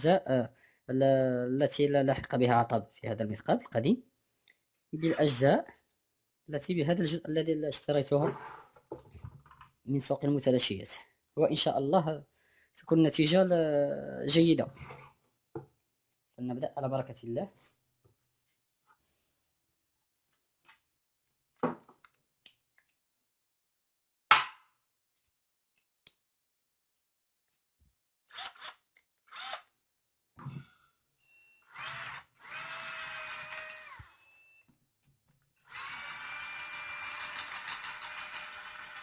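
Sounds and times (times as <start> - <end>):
power drill motor running: 28.3 - 29.6, 31.7 - 34.3, 35.7 - 39.0.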